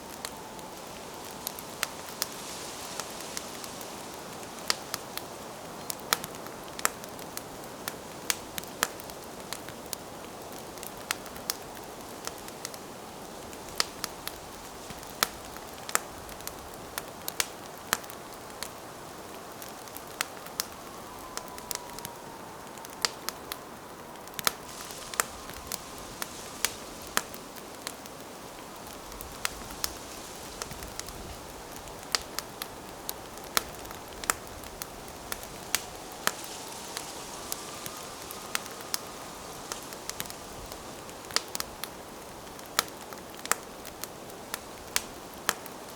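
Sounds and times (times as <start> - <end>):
hiss of flames: 0.0 - 45.9
wood fire crackling and popping: 0.0 - 45.9
faint falling whistle: 20.4 - 28.0, 35.1 - 41.6.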